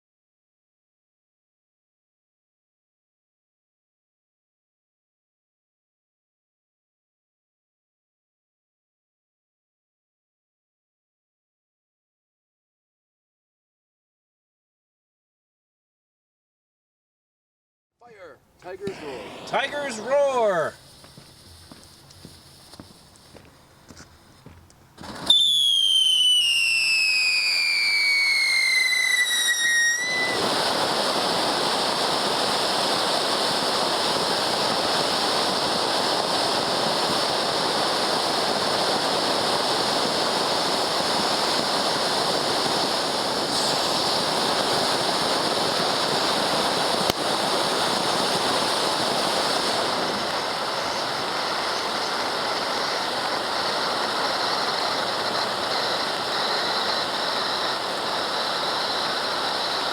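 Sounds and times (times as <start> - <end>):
firework crackling hiss: 18.6 - 59.9
firework whistle falling in pitch: 25.0 - 32.2.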